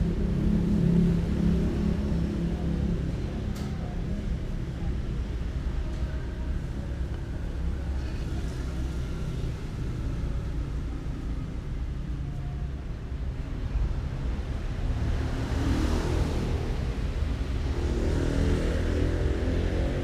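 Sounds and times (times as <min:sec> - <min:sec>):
steady low rumble: 0:00.0 - 0:05.9.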